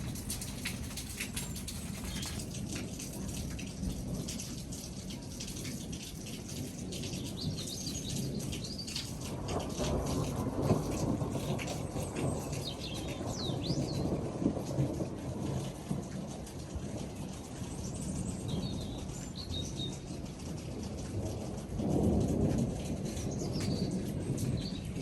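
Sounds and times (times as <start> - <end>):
rain falling steadily: 0.0 - 25.0
low roll of thunder: 9.1 - 25.0.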